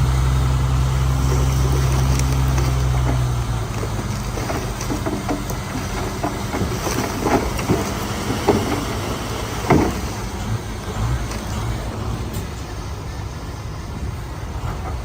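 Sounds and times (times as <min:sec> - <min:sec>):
bulldozer engine drone: 0:00.0 - 0:15.0
metal clanks and knocks: 0:01.2 - 0:11.7.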